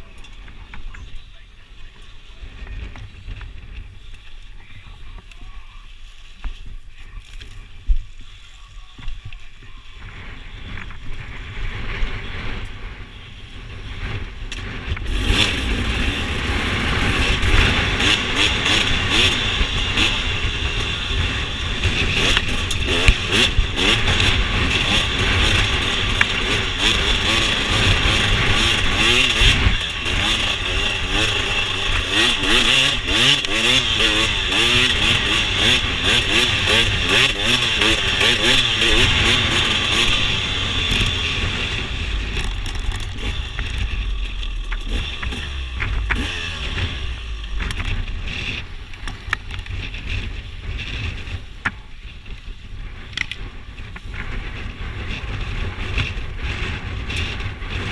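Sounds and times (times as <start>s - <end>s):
dirt bike engine revving: 9.9s - 57.9s.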